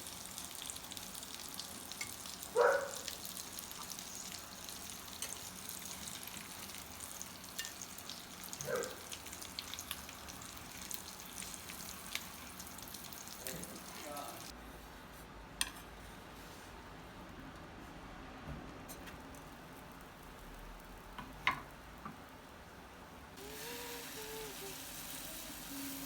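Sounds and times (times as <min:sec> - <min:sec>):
food sizzling in a pan: 0:00.0 - 0:14.6, 0:19.0 - 0:22.5, 0:23.4 - 0:26.0.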